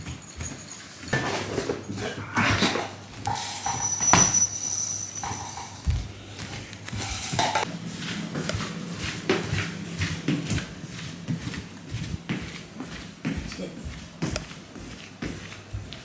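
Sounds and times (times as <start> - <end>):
thin high ringing tone: 0.0 - 2.0, 3.3 - 6.1
dish clinking and knocking: 0.0 - 6.1, 6.9 - 7.7.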